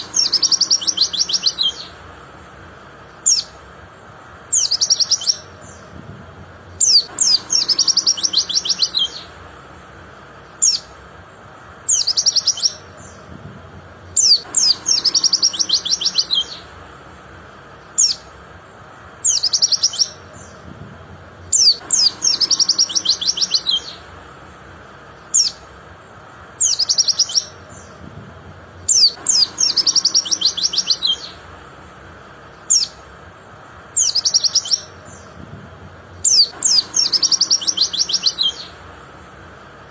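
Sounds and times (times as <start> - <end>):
sharp high bird chirps: 0.0 - 2.0, 3.1 - 3.6, 4.5 - 5.9, 6.8 - 9.4, 10.4 - 11.0, 11.8 - 13.3, 14.2 - 16.8, 17.8 - 18.3, 19.2 - 20.6, 21.5 - 24.1, 25.2 - 25.7, 26.6 - 28.0, 28.8 - 31.5, 32.5 - 33.0, 33.9 - 35.4, 36.2 - 38.9
bird twittering trills: 0.0 - 39.9.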